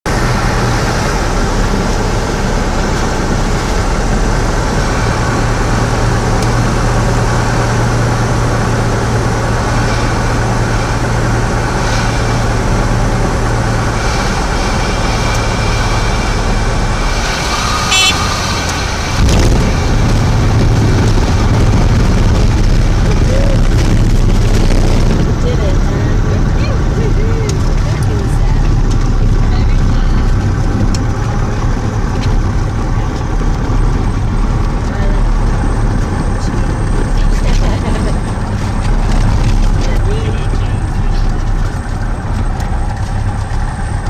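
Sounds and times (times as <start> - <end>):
airplane engine drone: 0.1 - 44.0
wheels touching down rumble: 0.1 - 44.0
stall warning horn beep: 17.8 - 18.5.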